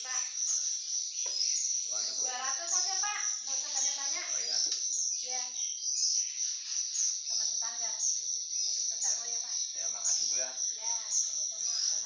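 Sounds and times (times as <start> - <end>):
indistinct voices talking: 0.0 - 0.8, 1.7 - 5.6, 7.2 - 12.0
insects chirring: 0.0 - 12.0.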